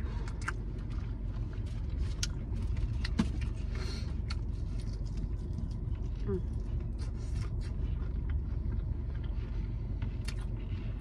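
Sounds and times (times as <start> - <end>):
chewing crispy fried chicken: 0.0 - 11.0.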